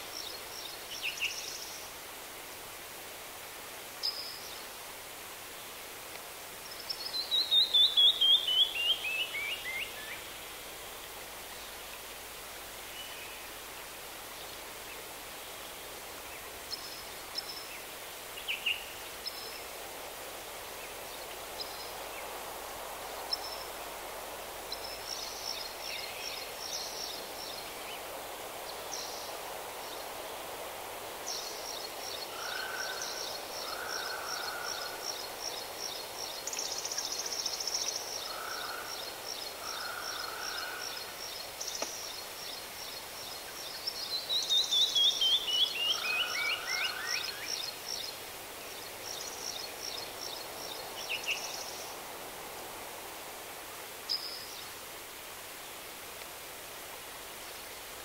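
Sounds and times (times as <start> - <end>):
outdoor hiss: 0.0 - 58.0.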